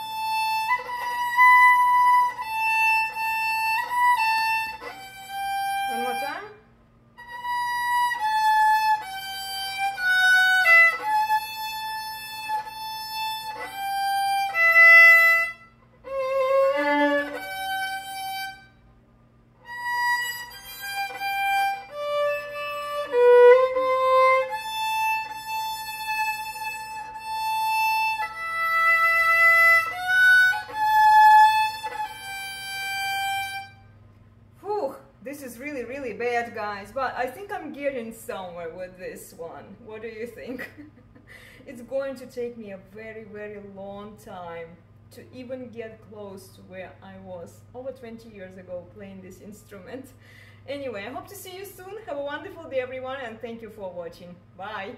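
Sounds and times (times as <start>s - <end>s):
violin playing slow melody: 0.0s - 6.6s, 7.2s - 18.9s, 19.6s - 34.0s
faint steady hum: 0.0s - 54.9s.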